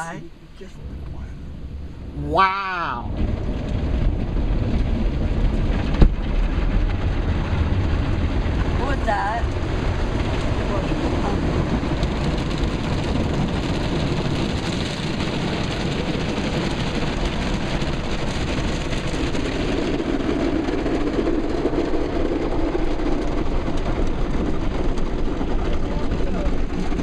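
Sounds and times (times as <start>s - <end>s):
deep hum: 0.0s - 27.0s
car wash water spray: 7.4s - 27.0s.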